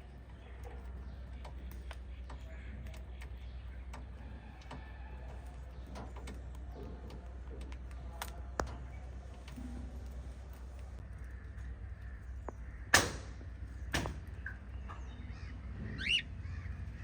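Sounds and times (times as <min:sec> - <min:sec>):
steady low hum: 0:00.0 - 0:17.0
small clicks and taps: 0:00.3 - 0:11.3.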